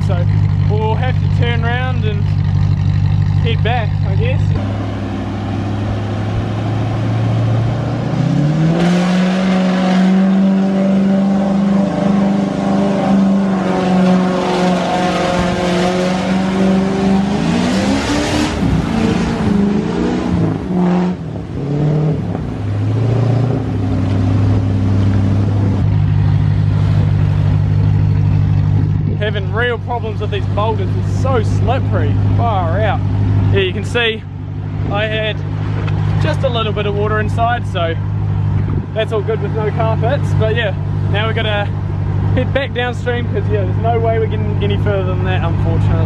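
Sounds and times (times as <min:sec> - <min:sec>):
car engine revving: 0:00.0 - 0:46.0
water splashing around vehicle: 0:20.3 - 0:32.4.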